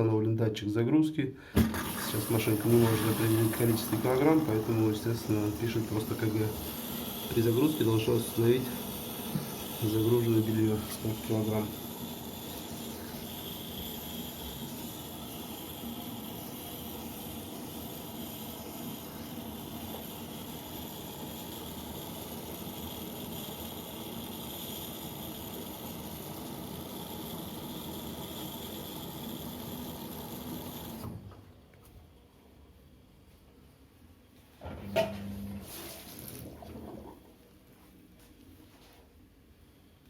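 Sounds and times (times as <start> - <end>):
water hissing: 1.6 - 24.2
washing machine running: 1.6 - 31.6, 34.6 - 37.4.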